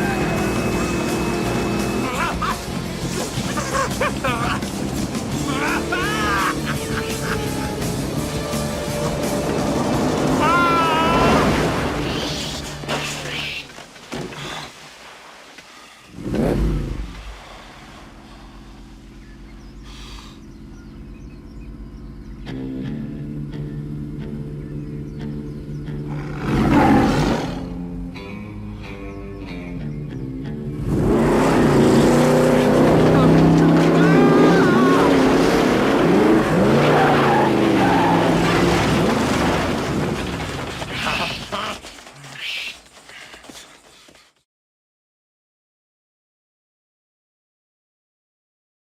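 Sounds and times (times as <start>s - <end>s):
monster truck engine revving: 0.0s - 12.0s, 26.0s - 27.9s, 30.8s - 40.8s.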